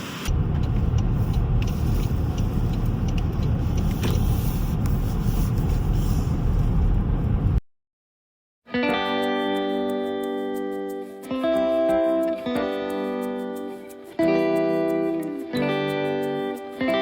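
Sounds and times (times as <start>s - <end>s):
car road and engine rumble: 0.0s - 7.6s.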